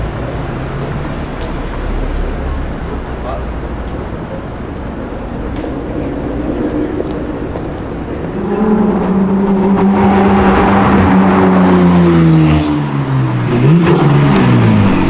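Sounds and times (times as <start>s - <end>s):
sports car engine driving past: 5.2s - 15.0s.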